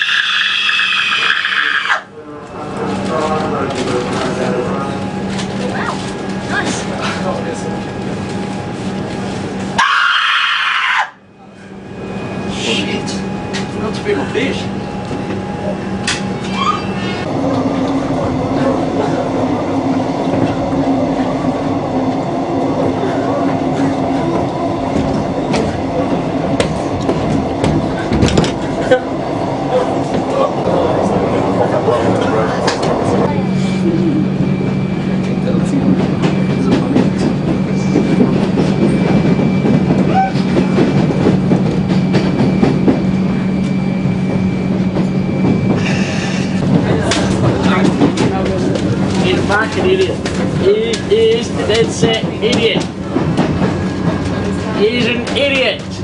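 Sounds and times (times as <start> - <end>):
train rumbling: 0.0 - 56.0.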